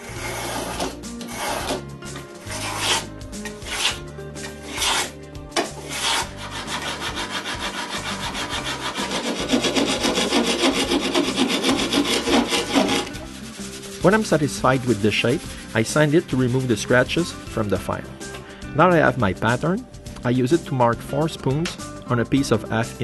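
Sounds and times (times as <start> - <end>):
file rasping back and forth: 0.0 - 1.8, 2.4 - 5.2, 5.8 - 17.6
hand tool strokes on hardboard: 0.0 - 18.4.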